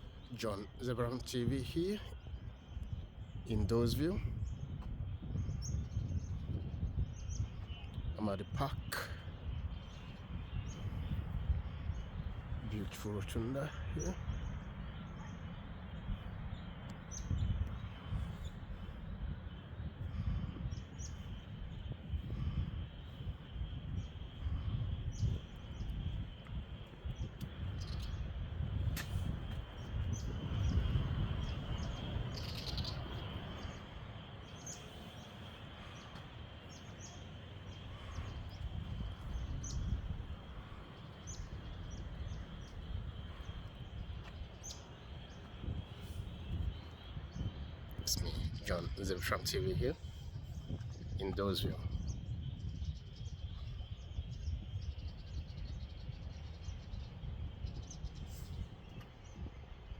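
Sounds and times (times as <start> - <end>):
bird chirps: 0.0 - 59.7
wind on microphone: 0.0 - 59.9.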